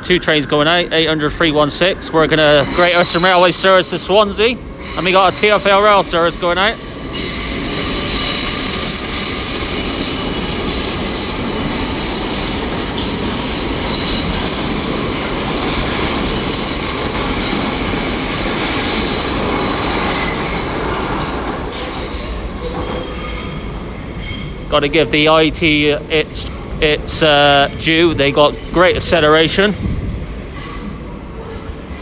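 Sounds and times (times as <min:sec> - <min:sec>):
electric trains running: 0:00.0 - 0:32.0
high steady squealing: 0:02.3 - 0:22.5.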